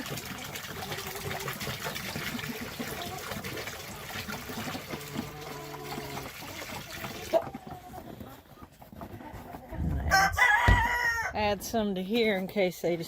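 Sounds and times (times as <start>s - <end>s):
water trickling and splashing: 0.0s - 8.2s.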